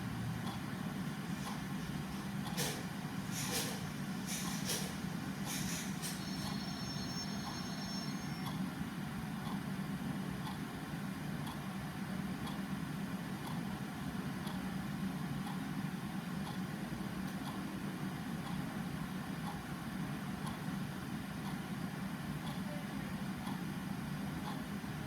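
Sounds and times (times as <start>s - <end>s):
faint high whine: 6.0s - 8.6s
clock ticking faintly: 9.4s - 9.6s, 11.4s - 11.6s, 16.4s - 16.7s, 17.3s - 17.6s, 24.4s - 24.7s.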